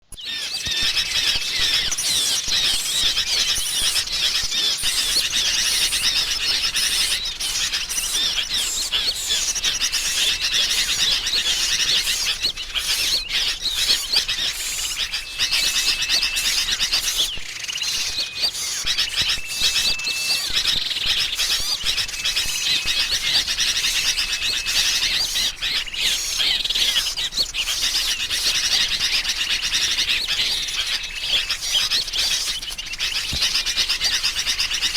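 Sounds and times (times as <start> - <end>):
chatter of many birds: 0.0 - 34.9
short thin whistles: 0.1 - 28.9.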